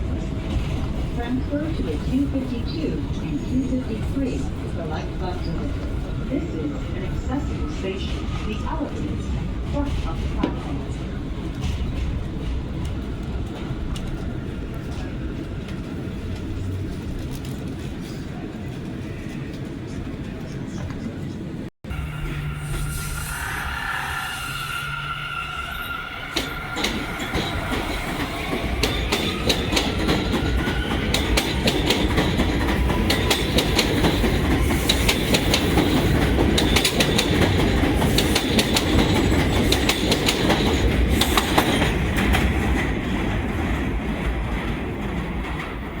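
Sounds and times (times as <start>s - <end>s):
subway train rumbling on rails: 0.0s - 46.0s.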